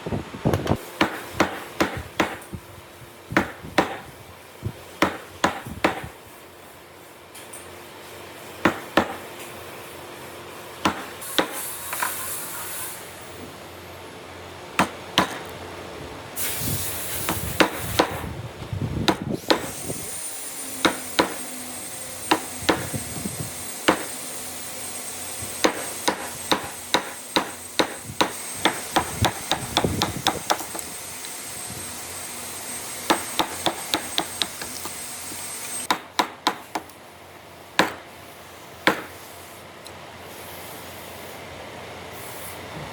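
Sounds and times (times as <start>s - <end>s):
hammer striking chisel: 0.5s - 2.5s, 3.4s - 4.0s, 5.0s - 6.1s, 8.6s - 9.2s, 10.8s - 12.1s, 14.8s - 15.5s, 17.3s - 18.2s, 19.1s - 19.8s, 20.8s - 23.0s, 23.7s - 24.4s, 25.5s - 30.9s, 32.8s - 37.0s, 37.8s - 38.0s, 38.8s - 39.2s.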